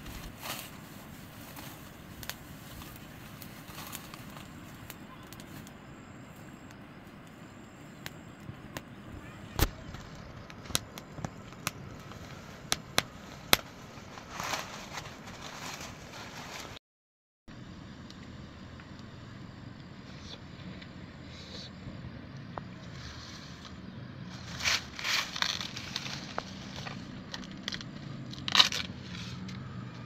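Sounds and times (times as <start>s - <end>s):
background hum: 17.5s - 30.0s.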